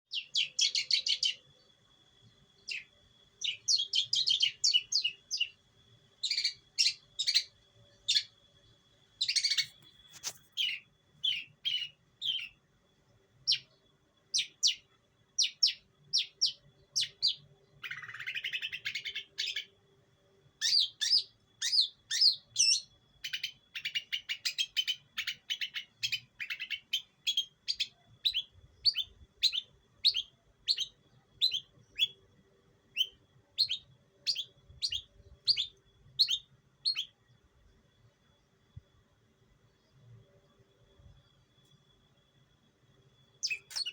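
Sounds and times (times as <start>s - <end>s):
bird chirping and trilling: 0.1s - 1.7s, 2.6s - 5.6s, 6.2s - 8.4s, 9.2s - 12.6s, 13.4s - 19.8s, 20.6s - 32.2s, 32.9s - 37.2s, 43.4s - 43.9s.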